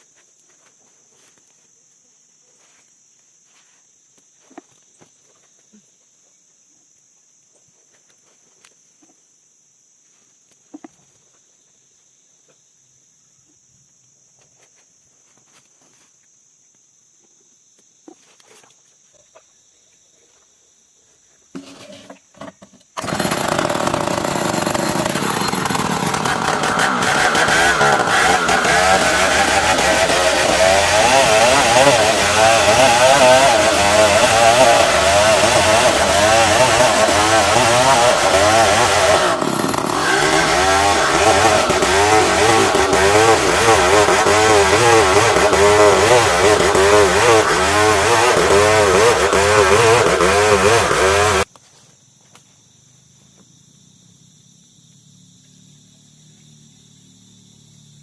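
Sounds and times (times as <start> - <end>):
insects buzzing: 0.0 - 58.0
chainsaw engine running loudly: 23.0 - 51.5.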